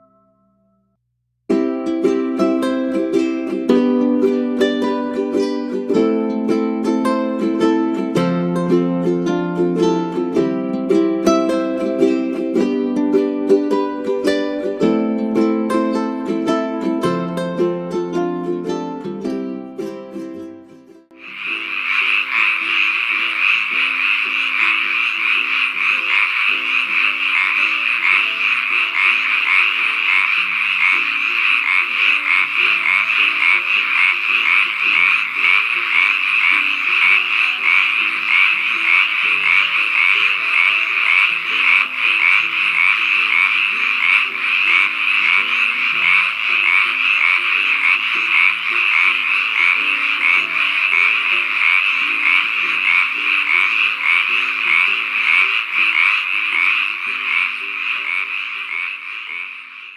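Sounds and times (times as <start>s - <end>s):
soft background music: 1.5s - 59.9s
chorus of frogs trilling: 21.2s - 59.9s.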